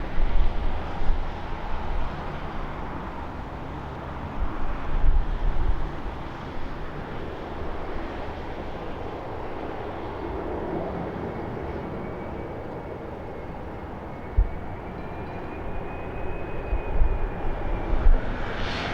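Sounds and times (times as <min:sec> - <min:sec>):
high engine whine: 0:00.0 - 0:18.9
jet engines rumbling: 0:00.0 - 0:18.9
wind buffeting microphone: 0:00.0 - 0:18.9.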